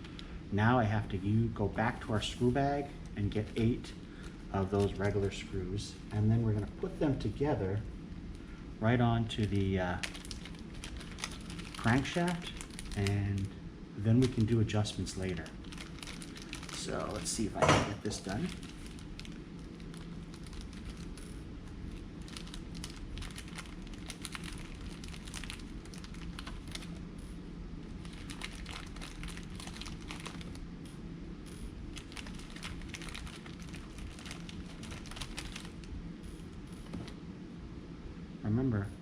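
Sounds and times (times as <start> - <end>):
plastic bag crinkling and rustling: 2.0 - 5.4, 9.2 - 13.5, 14.1 - 27.1, 27.9 - 30.7, 31.9 - 35.9.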